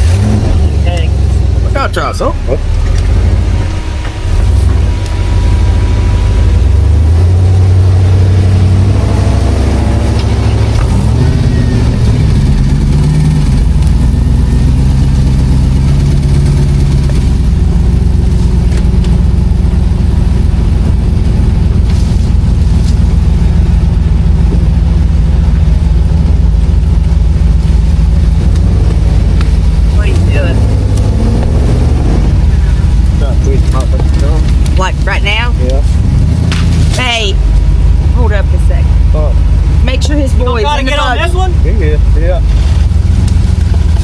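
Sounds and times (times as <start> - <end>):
vehicle engine running at low revs: 0.0 - 44.0.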